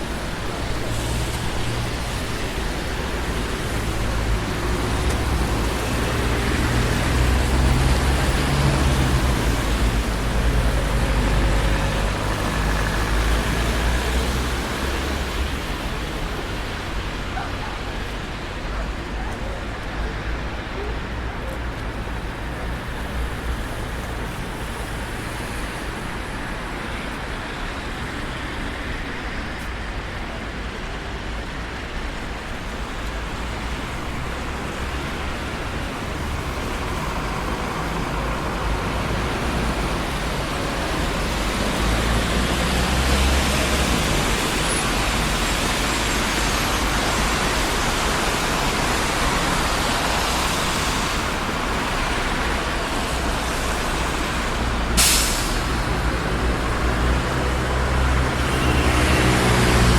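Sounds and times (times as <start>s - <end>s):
traffic tyre and engine noise: 0.0s - 59.9s
vehicle passing close: 34.4s - 59.9s.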